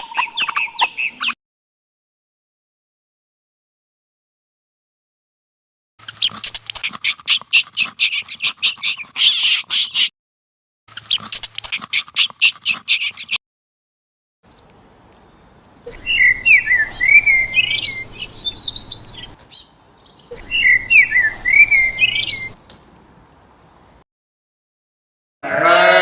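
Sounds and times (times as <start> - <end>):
small bird singing: 14.4 - 24.0.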